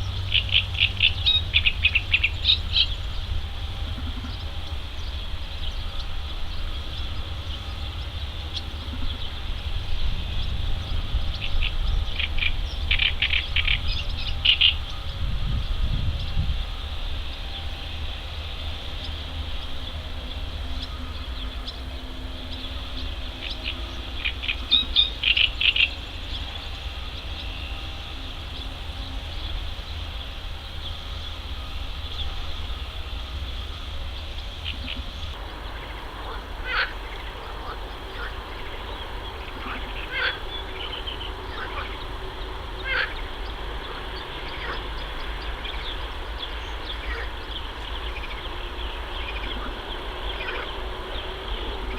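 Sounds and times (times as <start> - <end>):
ducks calling: 0.0 - 15.2, 32.3 - 51.9
steady low rumble: 0.0 - 51.9.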